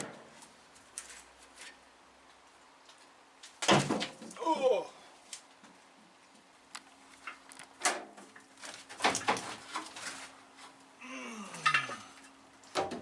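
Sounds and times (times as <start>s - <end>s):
faint steady hum: 9.5s - 13.0s.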